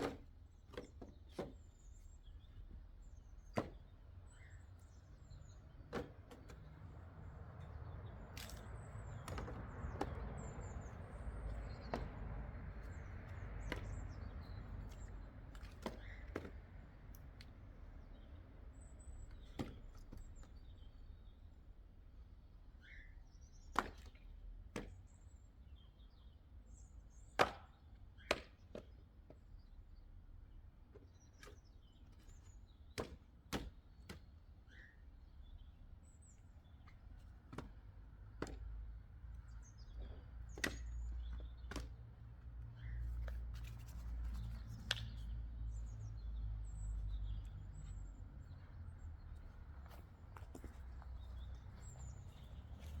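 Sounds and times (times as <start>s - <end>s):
axe chopping wood: 0.0s - 1.5s, 3.5s - 3.9s, 8.3s - 10.5s, 11.7s - 16.7s, 19.4s - 20.2s, 23.7s - 25.0s, 27.4s - 29.0s, 32.9s - 34.3s, 37.5s - 38.8s, 40.0s - 42.0s.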